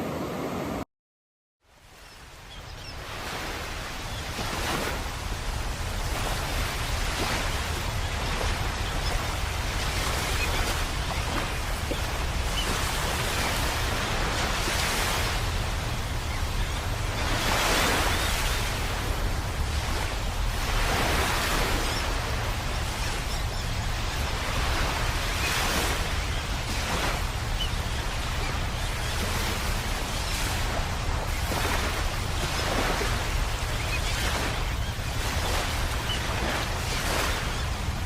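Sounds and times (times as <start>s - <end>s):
ocean waves breaking: 0.0s - 0.8s, 1.9s - 38.0s.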